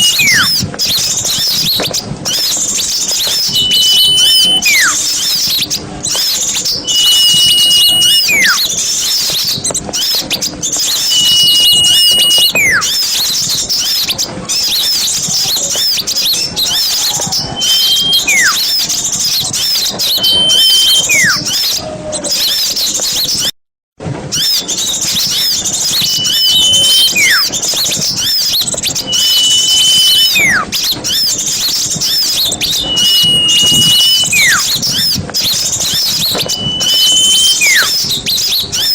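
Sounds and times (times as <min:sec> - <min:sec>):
high whistle then falling whistle: 0:00.0 - 0:00.6, 0:03.2 - 0:05.5, 0:06.2 - 0:09.4, 0:10.8 - 0:13.2, 0:16.4 - 0:18.8, 0:19.6 - 0:21.7, 0:24.4 - 0:31.2, 0:32.0 - 0:38.9
songbirds chattering and twittering: 0:00.0 - 0:23.5, 0:24.3 - 0:38.9.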